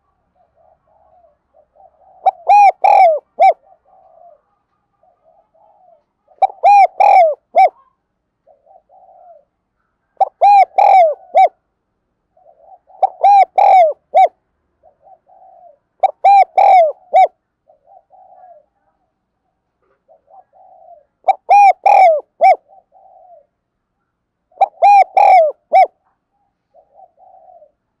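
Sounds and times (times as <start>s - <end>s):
dove cooing: 0.0s - 11.6s, 12.3s - 23.7s, 24.5s - 28.0s.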